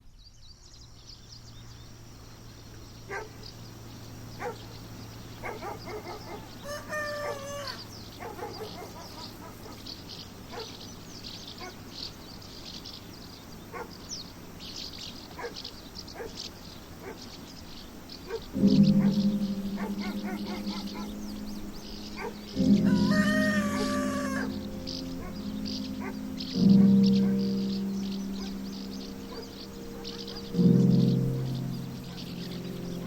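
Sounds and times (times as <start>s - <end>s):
small birds chirping: 0.0s - 33.0s
farmyard fowl calling: 5.4s - 9.8s, 19.8s - 25.4s.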